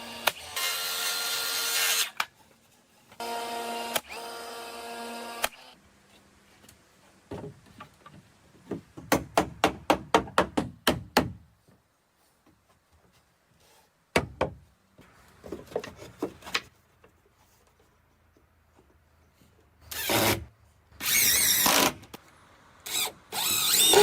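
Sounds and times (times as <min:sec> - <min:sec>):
power drill whining: 0:22.9 - 0:24.0.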